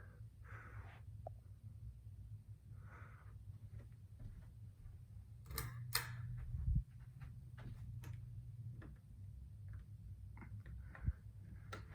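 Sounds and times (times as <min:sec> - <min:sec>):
faint breaths: 0:00.0 - 0:01.3, 0:02.6 - 0:04.5, 0:10.4 - 0:11.9
low room hum: 0:00.0 - 0:11.9.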